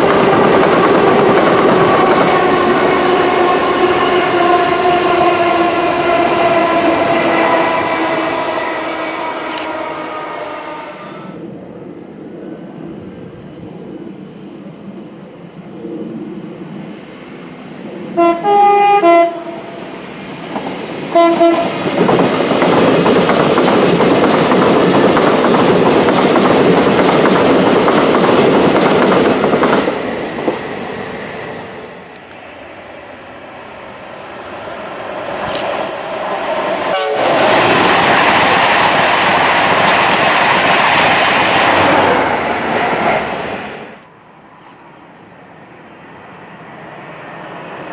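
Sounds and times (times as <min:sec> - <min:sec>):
train rushing past: 0:00.0 - 0:47.9
train horn blasts: 0:03.0 - 0:11.4, 0:18.1 - 0:19.8, 0:21.1 - 0:21.8, 0:36.9 - 0:37.4.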